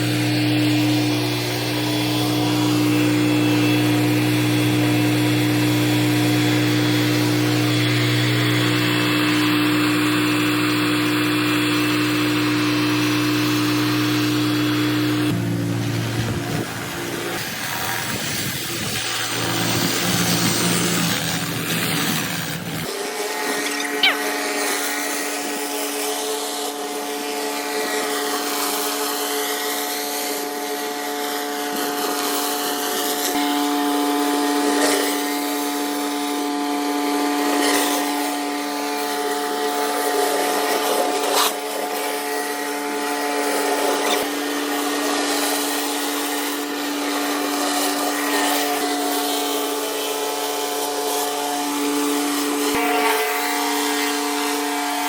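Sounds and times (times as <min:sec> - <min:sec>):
pressure washer motor humming: 0:00.0 - 0:55.0.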